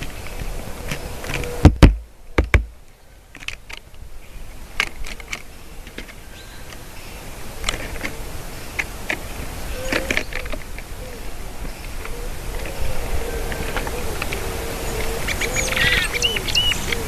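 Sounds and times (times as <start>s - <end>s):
small birds chipping: 0.0s - 17.0s
loud sharp knocks: 1.6s - 2.8s.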